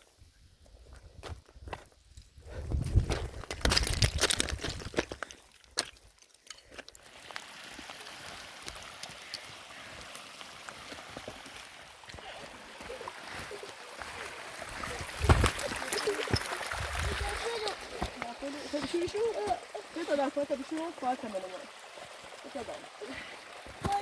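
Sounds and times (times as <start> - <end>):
water hissing: 7.0 - 24.0.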